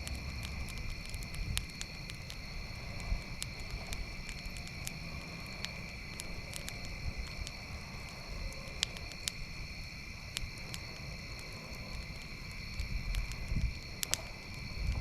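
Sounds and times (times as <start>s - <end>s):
campfire crackling and popping: 0.0s - 15.0s
crickets chirping: 0.0s - 15.0s.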